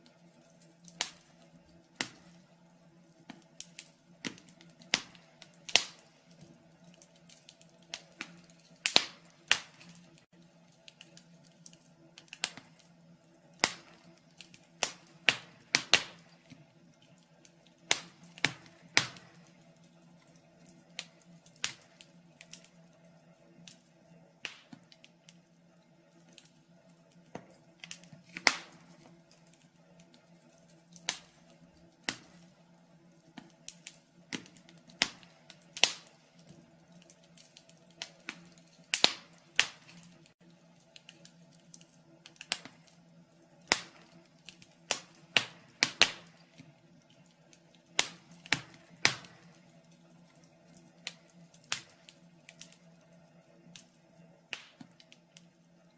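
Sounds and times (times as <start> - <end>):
faint steady hum: 0.0 - 55.9
wood fire crackling and popping: 0.0 - 55.9.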